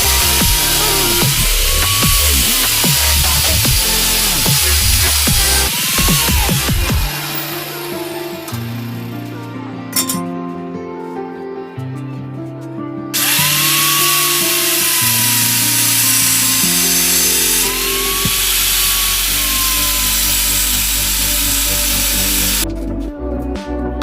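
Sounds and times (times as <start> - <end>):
power tool whining on metal: 0.0 - 8.8, 13.2 - 22.6
background music: 0.0 - 24.0.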